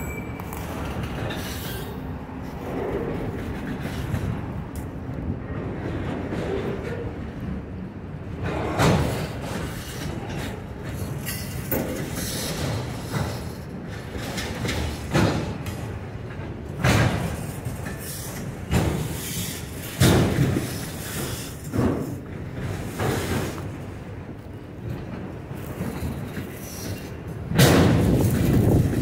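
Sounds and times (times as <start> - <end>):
freight train rumbling past: 0.0 - 29.0
loud train clunk: 0.0 - 29.0.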